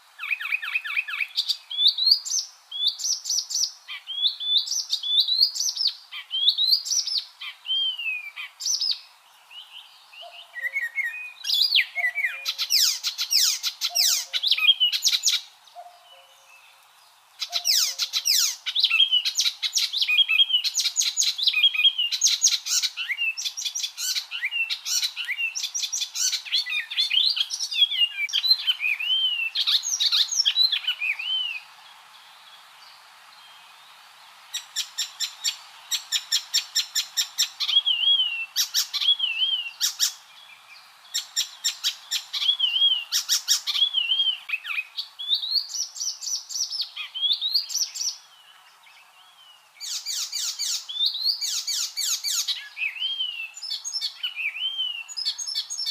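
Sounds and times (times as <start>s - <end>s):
warbler singing: 0.0s - 34.0s, 34.6s - 55.9s.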